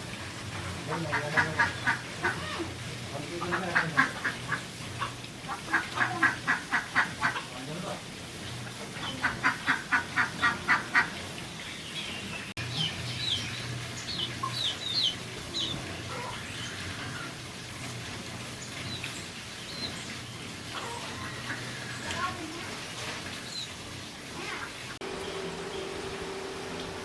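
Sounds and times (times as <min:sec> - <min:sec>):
duck quacking: 0:00.9 - 0:02.6, 0:03.4 - 0:07.5, 0:09.0 - 0:11.1
small birds chirping: 0:10.2 - 0:17.3, 0:18.5 - 0:22.6.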